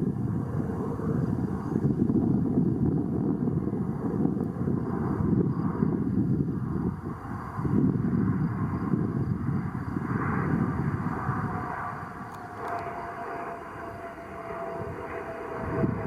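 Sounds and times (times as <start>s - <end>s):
airplane engine rumble: 0.0s - 16.0s
faint steady whine: 0.0s - 16.0s.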